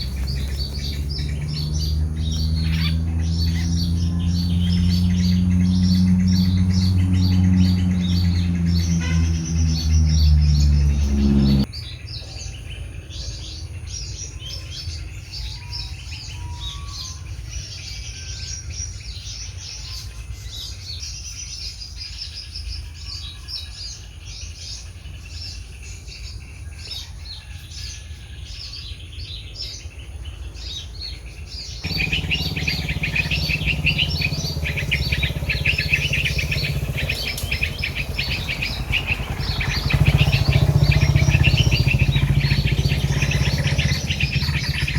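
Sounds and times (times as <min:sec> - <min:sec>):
low rumble: 0:00.0 - 0:11.7
songbirds chirping: 0:00.0 - 0:44.9.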